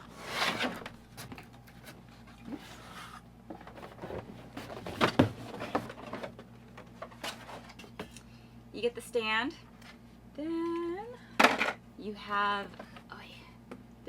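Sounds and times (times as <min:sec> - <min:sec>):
cardboard box rustling and scraping: 0:00.0 - 0:01.9.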